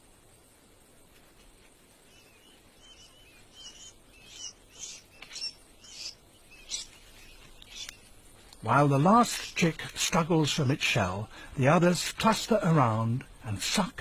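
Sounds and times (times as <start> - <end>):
chicks cheeping: 2.1 - 8.1.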